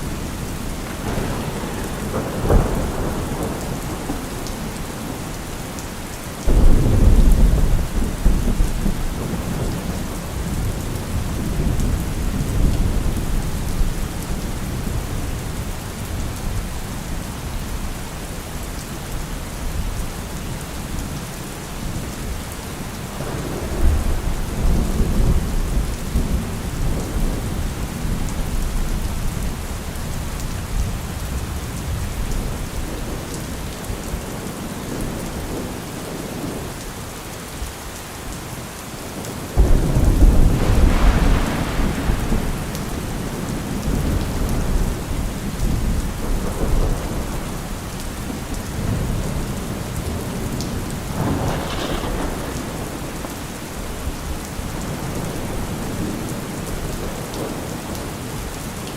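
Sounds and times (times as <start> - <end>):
loud thunderclap: 0.0 - 5.3, 6.5 - 13.7, 23.2 - 29.2, 39.6 - 56.3
thunder rumbling: 0.0 - 5.8, 6.4 - 17.2, 23.2 - 36.7, 39.5 - 58.1
steady rain: 0.0 - 58.9.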